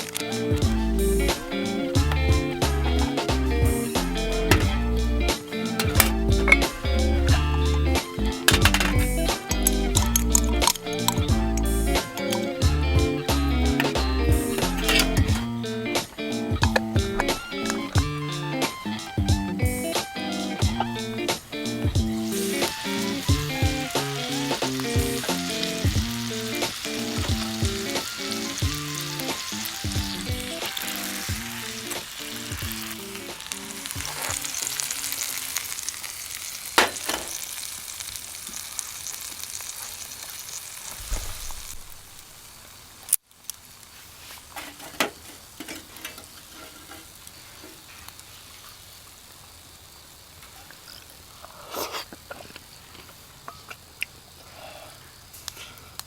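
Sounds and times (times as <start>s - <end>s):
background music: 0.0s - 35.2s
food sizzling in frying: 0.0s - 56.0s.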